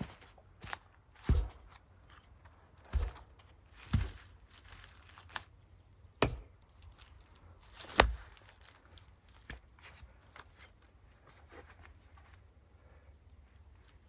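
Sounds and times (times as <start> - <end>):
firewood chopping knocks: 1.3 - 1.7, 2.9 - 3.3, 3.9 - 4.2, 6.2 - 6.6, 7.9 - 8.2.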